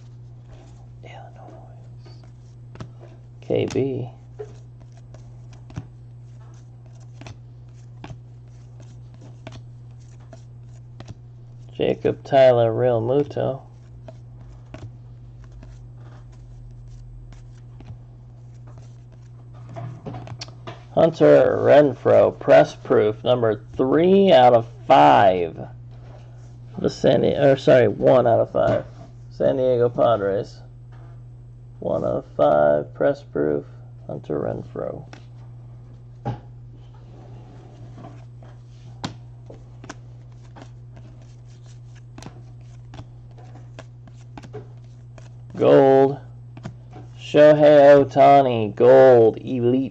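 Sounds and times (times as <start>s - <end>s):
steady low hum: 0.0s - 49.9s
trading cards rustling: 0.1s - 20.6s, 37.7s - 47.4s.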